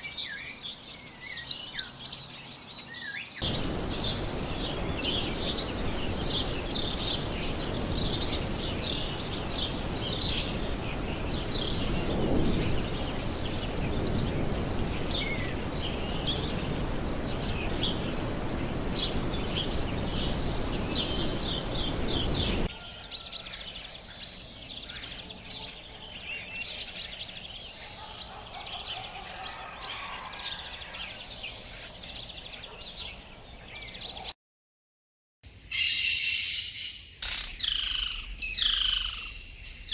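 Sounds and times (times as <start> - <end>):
small birds chirping: 0.0 - 34.3
steady rushing noise: 3.4 - 22.7.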